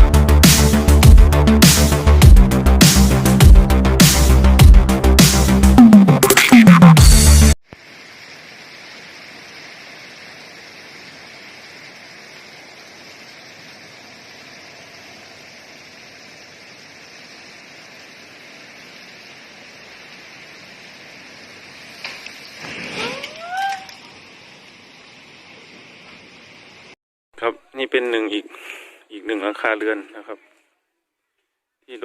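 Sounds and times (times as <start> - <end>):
outdoor background hiss: 7.2 - 32.0
short rising calls: 22.4 - 24.2.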